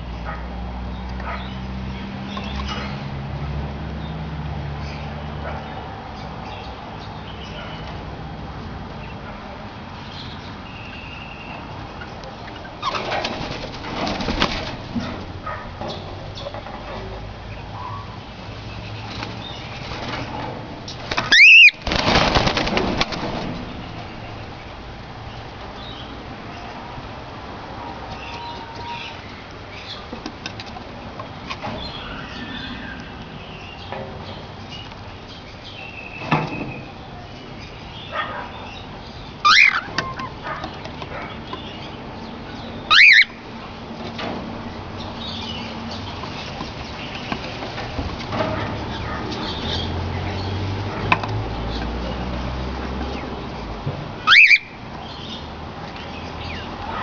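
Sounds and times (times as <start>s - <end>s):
wing flapping and rustling: 12.7s - 15.6s, 18.5s - 25.6s
cockatiels chirping calls: 21.2s - 21.8s, 37.7s - 41.8s, 42.5s - 43.4s, 54.3s - 55.4s
cockatiel whistling: 21.3s - 21.8s, 54.3s - 54.8s.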